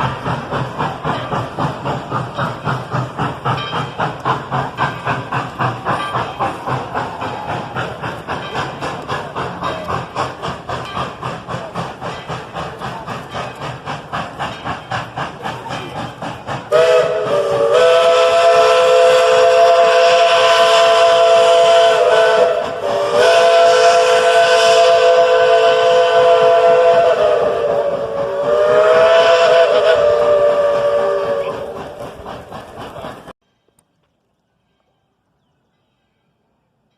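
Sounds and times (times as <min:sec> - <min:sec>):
steam locomotive chuffing: 0:00.0 - 0:33.4
steam whistle blasts: 0:16.7 - 0:31.8.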